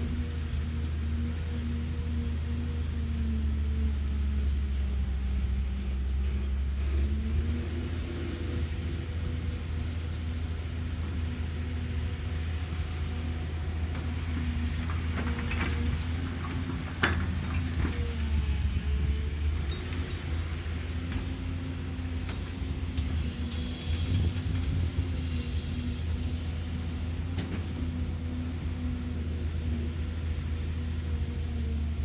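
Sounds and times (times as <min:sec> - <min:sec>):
excavator diesel engine running: 0:00.0 - 0:32.0
metal clanks and knocks: 0:16.4 - 0:18.0.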